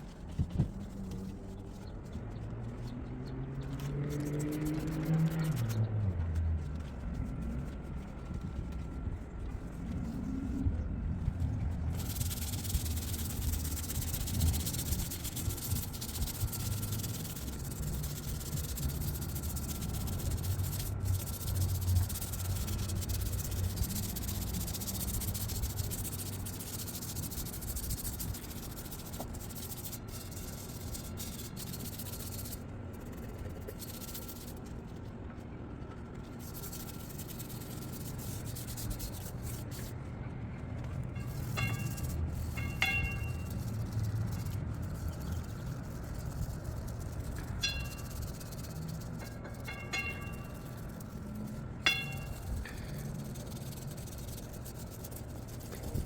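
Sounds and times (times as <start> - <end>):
scrubbing patio furniture: 3.6 - 10.0, 11.8 - 35.0, 35.9 - 40.0, 40.9 - 56.0.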